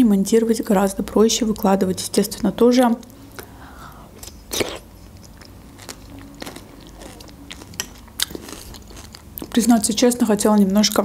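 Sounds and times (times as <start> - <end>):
person chewing soup: 3.3 - 9.6
croutons crunching: 4.2 - 10.0.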